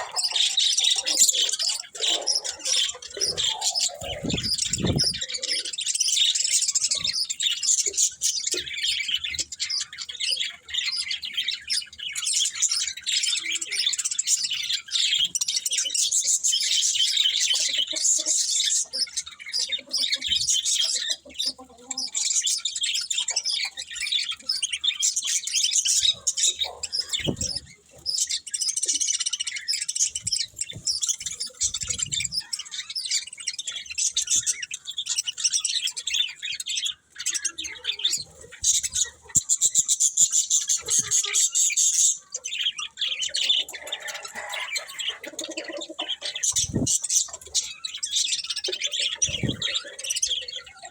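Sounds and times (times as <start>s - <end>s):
budgerigars chattering: 0.0s - 50.9s.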